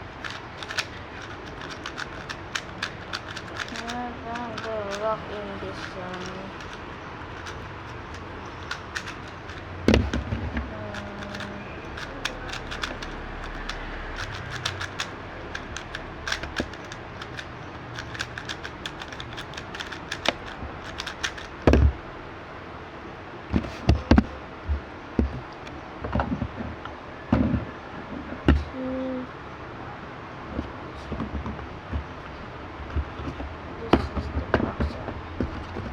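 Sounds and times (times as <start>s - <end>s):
plastic cube clicking: 0.0s - 21.9s.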